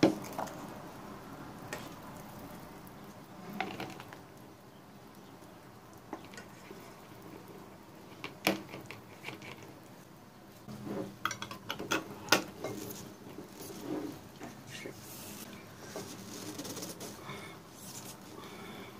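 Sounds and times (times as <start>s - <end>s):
utensils and glass jar clinking: 11.2s - 12.9s
cloth rubbing: 13.4s - 18.3s.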